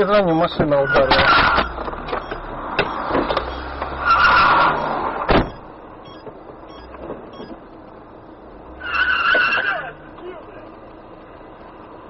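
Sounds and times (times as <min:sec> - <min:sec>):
tyre squeal: 0:00.0 - 0:01.8, 0:03.5 - 0:05.0, 0:08.8 - 0:10.0
car road noise: 0:00.0 - 0:12.0.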